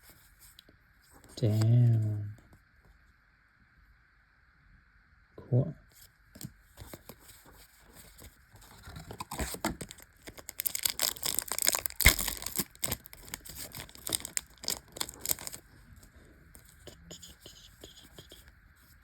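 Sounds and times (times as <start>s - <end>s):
foil wrapper crinkling and tearing: 8.6s - 15.7s.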